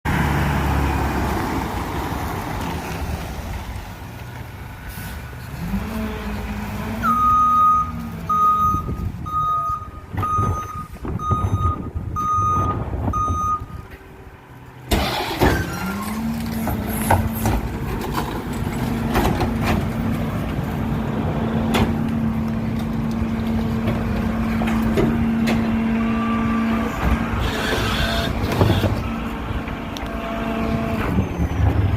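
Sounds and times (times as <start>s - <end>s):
diesel truck engine running: 0.1s - 31.9s
reversing alarm beeping: 7.0s - 13.8s.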